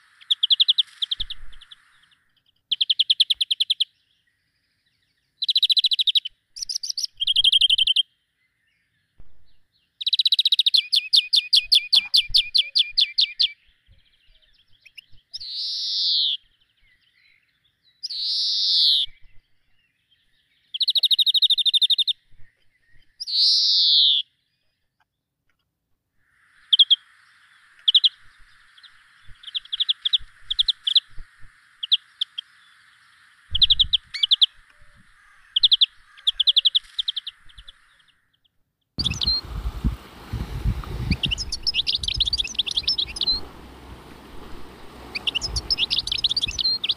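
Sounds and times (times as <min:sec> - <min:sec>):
steady hiss: 0:00.0 - 0:02.3, 0:26.2 - 0:35.2, 0:39.0 - 0:46.9
songbird singing: 0:00.0 - 0:46.9.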